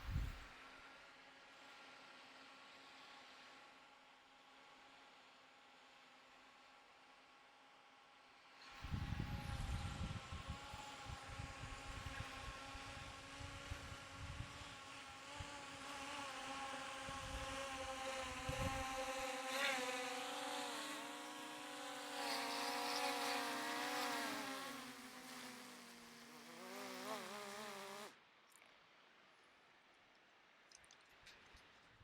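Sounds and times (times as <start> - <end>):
wind rumbling on microphone: 0.0 - 0.4, 8.8 - 14.6, 18.2 - 19.1.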